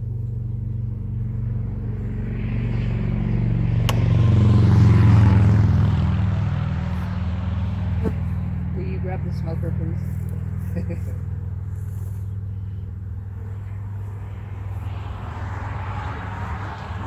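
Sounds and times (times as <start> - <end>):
low mechanical hum: 0.0 - 17.0
sharp click: 3.9 - 4.1.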